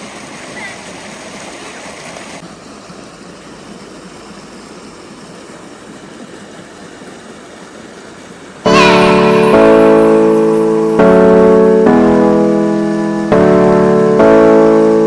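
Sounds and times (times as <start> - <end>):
loud piano music: 8.7 - 15.0.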